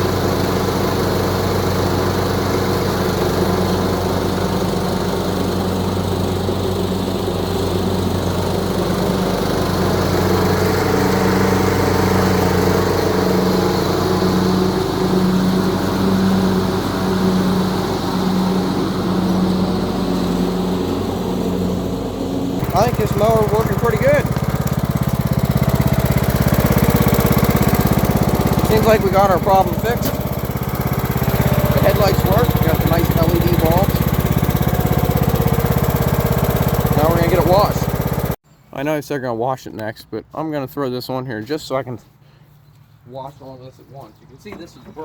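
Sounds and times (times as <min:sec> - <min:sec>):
lawn mower engine running: 0:00.0 - 0:38.4.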